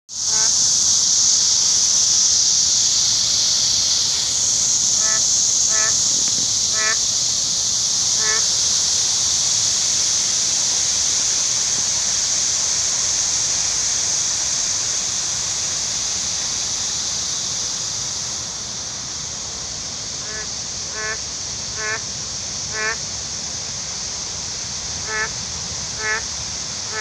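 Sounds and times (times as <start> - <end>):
steady high-pitched hiss: 0.1 - 27.0
frog honking calls: 0.3 - 0.6, 4.8 - 7.0, 8.2 - 8.6, 20.2 - 21.2, 21.8 - 22.0, 22.7 - 23.0, 25.0 - 25.4, 26.0 - 26.3.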